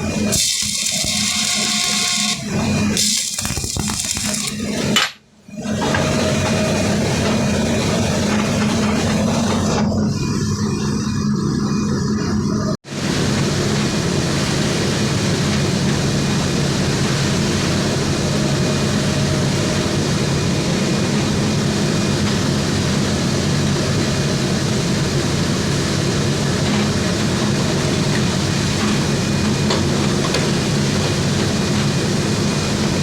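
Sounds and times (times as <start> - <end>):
welding arc crackling hiss: 0.3 - 4.8.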